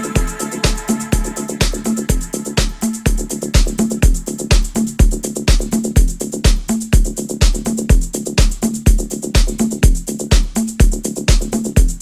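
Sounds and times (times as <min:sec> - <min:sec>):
synth bassline: 0:00.0 - 0:06.4
electronic dance music: 0:00.0 - 0:12.0
hi-hats: 0:00.0 - 0:12.0
kick drum: 0:00.0 - 0:12.0.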